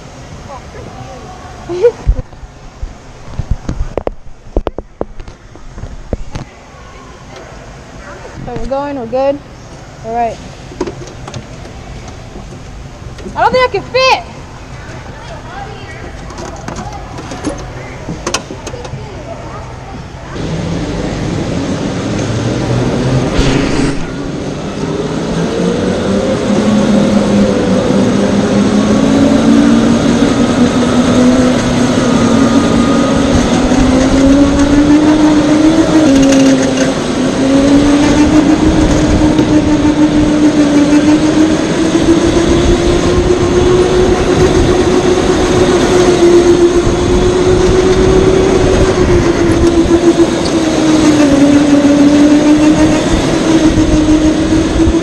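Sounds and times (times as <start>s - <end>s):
loud low rumble: 20.4s - 27.4s
electric go-kart motor whining: 20.4s - 55.0s.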